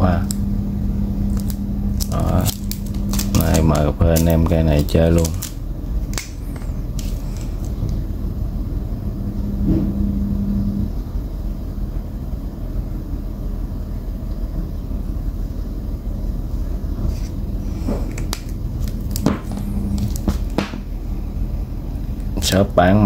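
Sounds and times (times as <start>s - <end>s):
short hum: 0.0s - 11.4s, 16.8s - 21.8s
low background rumble: 0.0s - 23.0s.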